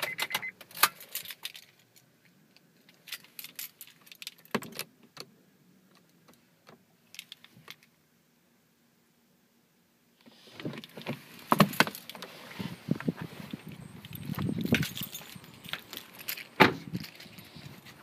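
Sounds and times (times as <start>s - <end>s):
keys jangling: 3.0s - 4.5s, 14.0s - 17.6s.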